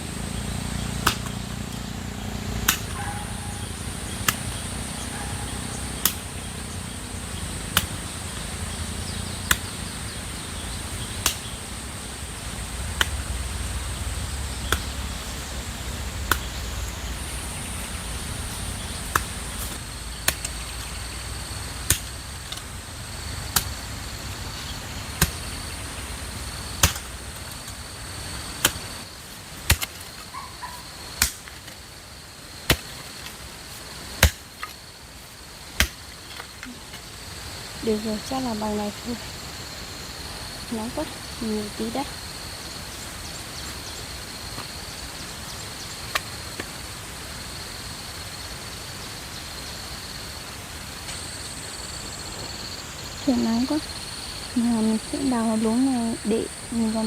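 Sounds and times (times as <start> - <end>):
high insect drone: 0.0 - 57.0
digging tool chopping into soil: 1.0 - 1.4, 2.6 - 3.2, 4.2 - 4.6, 7.7 - 8.0, 9.5 - 9.7, 11.2 - 11.5, 13.0 - 13.2, 14.6 - 14.9, 18.5 - 20.9, 21.8 - 22.7, 23.5 - 23.8, 25.2 - 25.5, 26.8 - 27.1, 28.6 - 28.9, 29.6 - 30.2, 31.2 - 31.8, 32.6 - 33.3, 34.2 - 34.8, 35.8 - 36.6.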